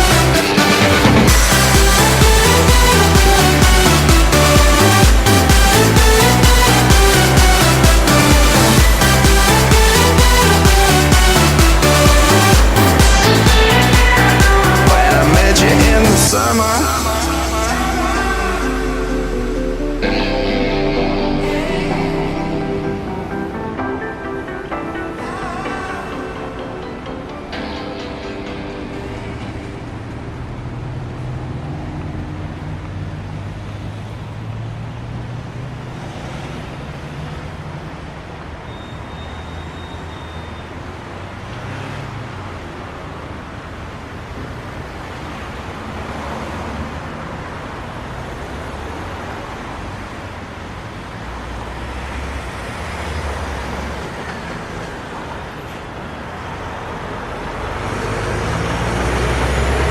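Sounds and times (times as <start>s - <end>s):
low engine rumble: 0.0s - 26.9s
passing vehicles rushing: 0.0s - 59.9s.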